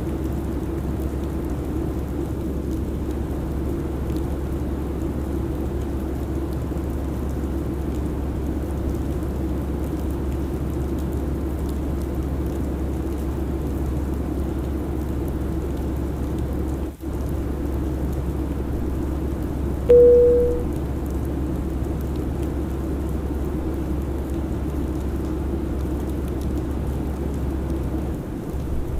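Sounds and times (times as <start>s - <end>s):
chime-like tone: 19.9s - 20.7s.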